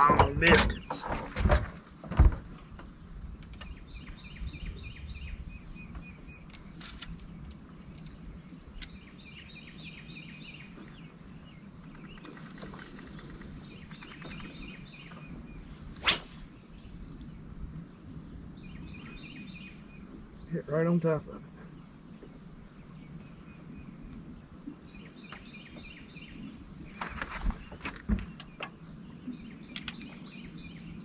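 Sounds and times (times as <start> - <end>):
songbird chirping: 0.0 - 1.2, 2.2 - 31.0
outdoor background noise: 0.0 - 31.0
sharp click: 29.7 - 30.0.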